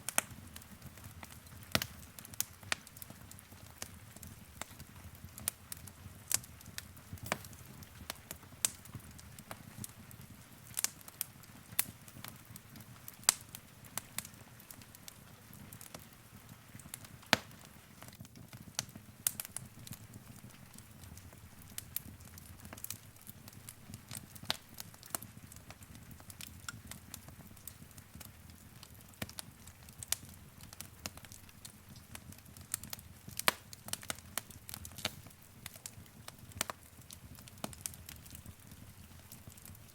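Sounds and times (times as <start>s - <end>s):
wood fire crackling and popping: 0.0s - 39.9s
low rumble of flames: 0.1s - 39.9s.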